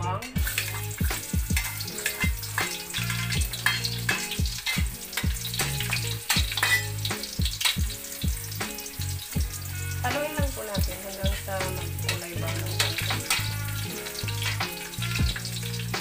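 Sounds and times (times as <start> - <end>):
background music with bass beat: 0.0 - 8.8, 13.1 - 16.0
garlic sizzling in hot oil: 0.0 - 16.0
metal spatula scraping a wok: 0.3 - 10.1, 11.4 - 16.0.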